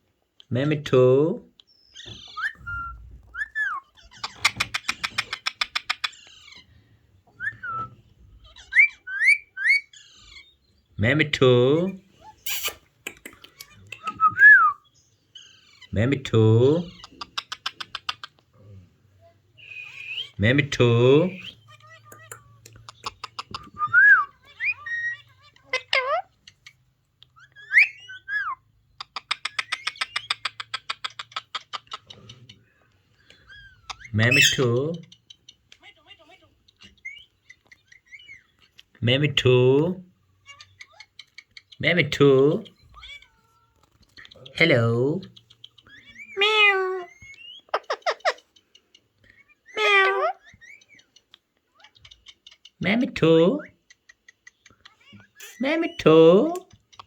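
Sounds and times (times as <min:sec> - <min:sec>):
parrot whistled call: 0:02.3 - 0:03.9, 0:23.8 - 0:25.1
parrot rattling chatter: 0:04.0 - 0:06.4
parrot whistling and clicking: 0:07.4 - 0:07.9, 0:12.4 - 0:14.8, 0:21.4 - 0:26.1, 0:27.2 - 0:32.1, 0:45.4 - 0:48.4.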